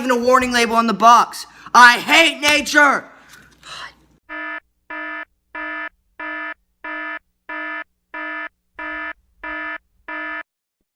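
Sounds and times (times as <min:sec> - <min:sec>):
electronic alarm buzzer pulses: 0:04.3 - 0:10.4.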